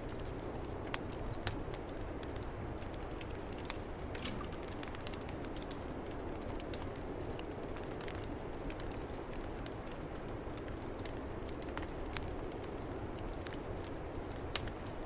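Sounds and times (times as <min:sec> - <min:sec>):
wood fire crackling: 0:00.0 - 0:15.0
sharp pops of fire: 0:03.5 - 0:05.8.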